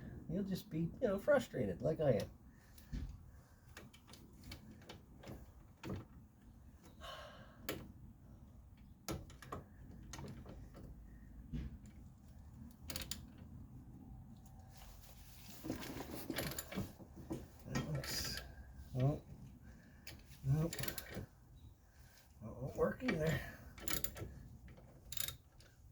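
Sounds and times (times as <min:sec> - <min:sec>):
rustling and clatter: 0:14.3 - 0:25.8
hand tools clicking and knocking: 0:20.0 - 0:21.3, 0:23.0 - 0:25.7.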